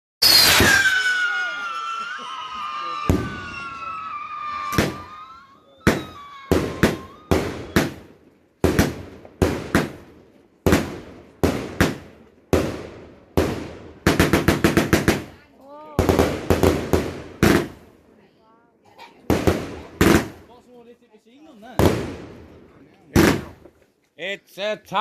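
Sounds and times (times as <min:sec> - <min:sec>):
firework whistle falling in pitch: 0:00.2 - 0:08.0
firework bangs: 0:00.2 - 0:17.9, 0:19.3 - 0:20.5, 0:21.8 - 0:23.7.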